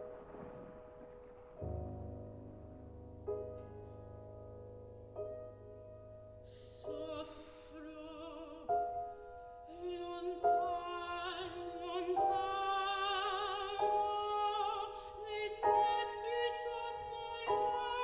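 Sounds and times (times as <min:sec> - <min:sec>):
piano chords: 0:00.0 - 0:18.0
soprano singing with vibrato: 0:06.5 - 0:18.0.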